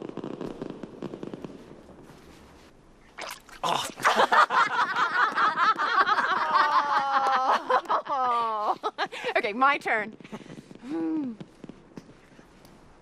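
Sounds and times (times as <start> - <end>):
faint crackle: 0.0 - 4.0, 7.3 - 13.0
water splashing and bubbling: 3.0 - 4.3.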